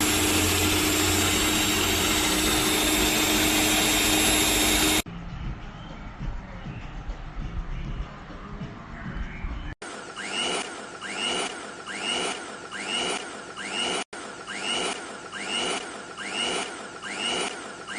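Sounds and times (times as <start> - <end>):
electric mixer whining: 0.0 - 5.0, 10.2 - 17.9.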